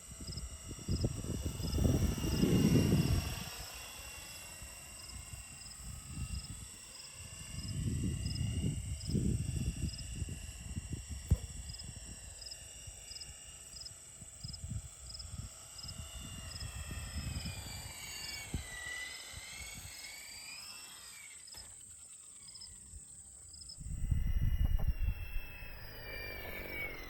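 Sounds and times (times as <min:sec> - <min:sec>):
rc helicopter motor and rotor whine: 0:00.0 - 0:27.0
low gusty rumble: 0:23.8 - 0:27.0.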